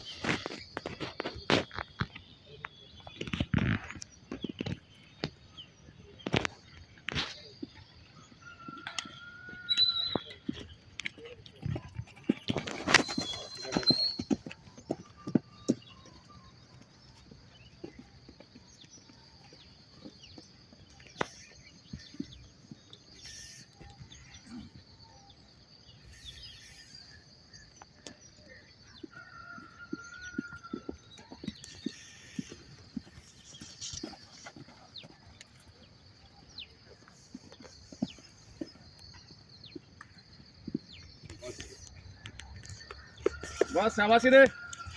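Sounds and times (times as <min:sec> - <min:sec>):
horse hoofbeats: 0:07.4 - 0:24.6, 0:28.7 - 0:44.9
bird call: 0:08.4 - 0:11.3, 0:12.3 - 0:18.1, 0:23.1 - 0:25.4, 0:26.0 - 0:35.4.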